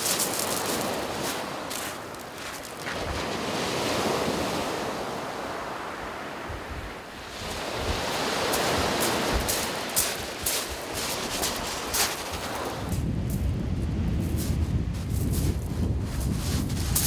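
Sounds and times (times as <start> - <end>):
surf on shingle beach: 0.0 - 17.0
wind buffeting microphone: 6.5 - 17.0.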